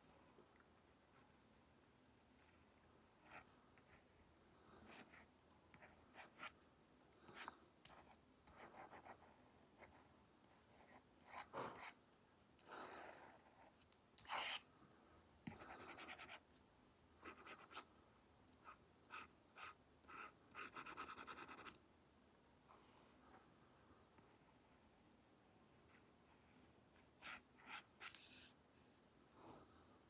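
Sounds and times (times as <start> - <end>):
stylus scratching on tablet screen: 14.2 - 14.6, 18.6 - 21.8.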